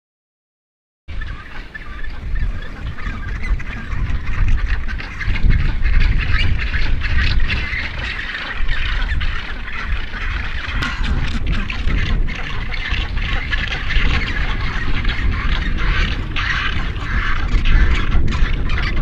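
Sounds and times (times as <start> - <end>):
albatrosses squawking and honking: 1.1 - 19.0
low wind rumble: 1.1 - 19.0.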